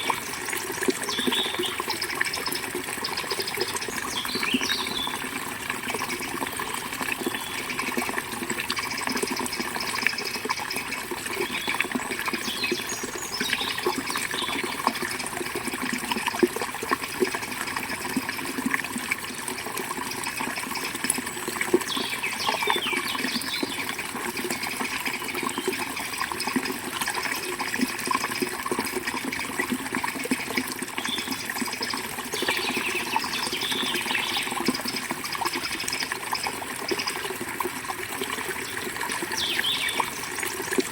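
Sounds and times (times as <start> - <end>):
river water flowing over rocks: 0.0 - 40.9
bird chirps: 4.0 - 5.2, 39.4 - 40.1.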